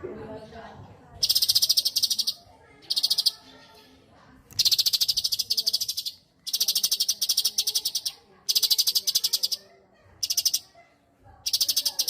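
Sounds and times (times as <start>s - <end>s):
bird singing rapid trills: 1.2s - 3.8s, 4.5s - 9.6s, 10.2s - 10.7s, 11.4s - 12.0s.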